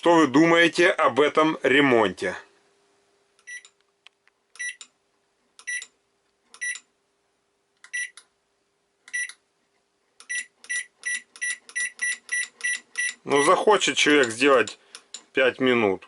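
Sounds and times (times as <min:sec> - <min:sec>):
microwave control panel beeping: 0:03.4 - 0:03.8, 0:04.6 - 0:04.9, 0:05.6 - 0:06.0, 0:06.6 - 0:06.9, 0:07.8 - 0:08.2, 0:09.1 - 0:09.4, 0:10.2 - 0:14.8.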